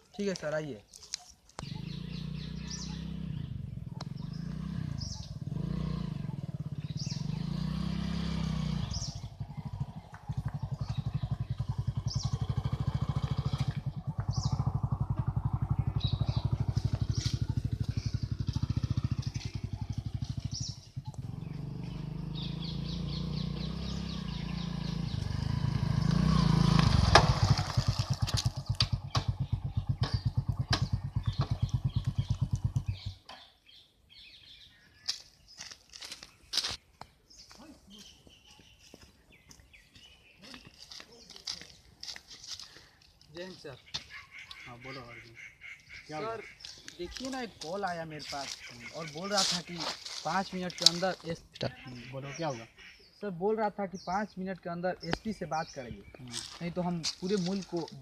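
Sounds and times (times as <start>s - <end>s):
motorcycle engine running: 1.6s - 33.2s.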